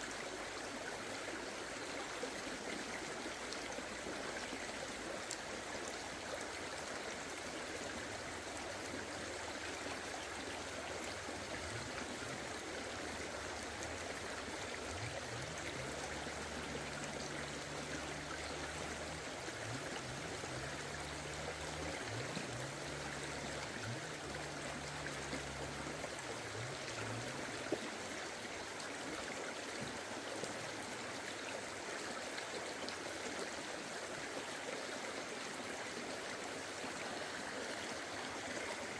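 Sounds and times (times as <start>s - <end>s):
stream running over rocks: 0.0s - 38.9s
faint low hum: 7.8s - 28.9s.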